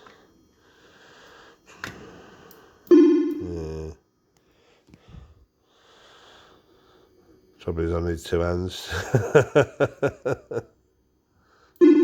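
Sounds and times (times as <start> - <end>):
electronic bleep: 2.9 - 3.5
falling electronic tones: 2.9 - 3.7.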